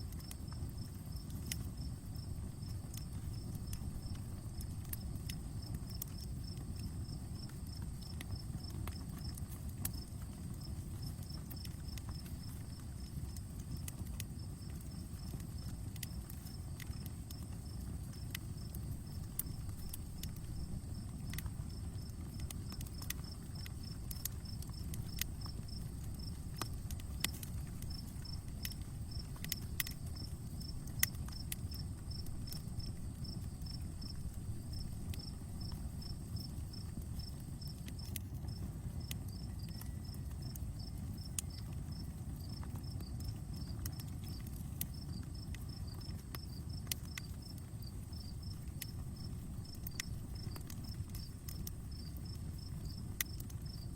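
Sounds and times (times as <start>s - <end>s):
wood fire crackling: 0.0s - 53.9s
insect chirping: 0.2s - 53.9s.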